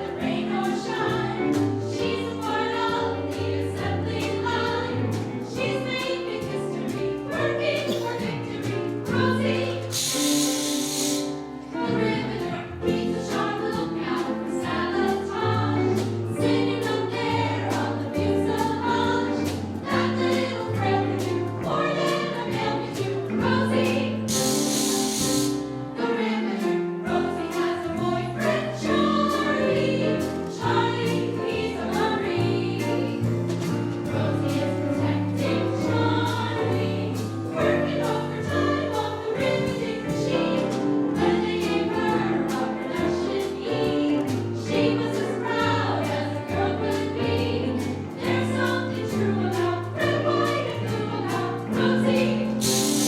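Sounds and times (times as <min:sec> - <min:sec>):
group singing: 0:00.0 - 0:53.0.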